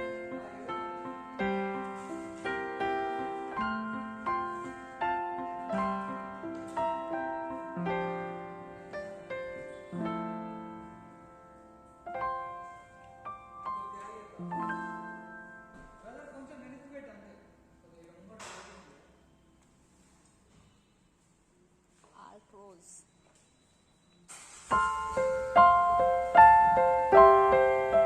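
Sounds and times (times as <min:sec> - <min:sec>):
slow piano chords: 0:00.0 - 0:17.8, 0:24.7 - 0:28.0.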